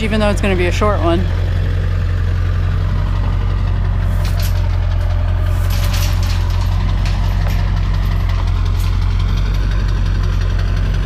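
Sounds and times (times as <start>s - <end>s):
truck engine running: 0.0s - 11.0s
light clicks and rattles: 4.1s - 10.8s.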